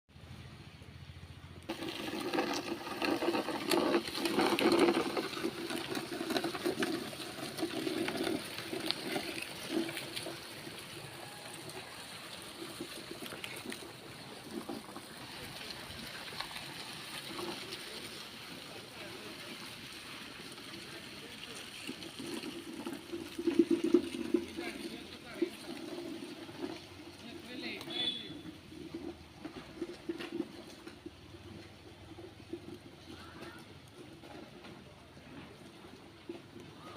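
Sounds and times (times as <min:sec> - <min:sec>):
water flowing and gurgling: 0:01.7 - 0:27.6.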